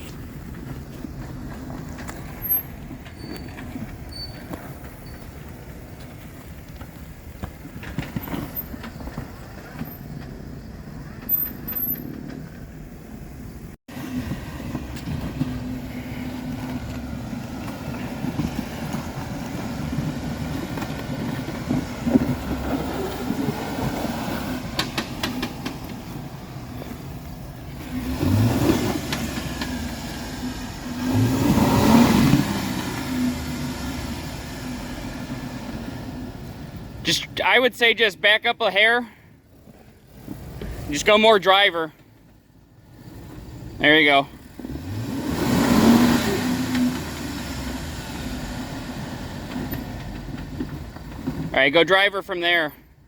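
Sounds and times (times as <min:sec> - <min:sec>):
car engine revving: 0:13.9 - 0:37.0, 0:43.0 - 0:51.5.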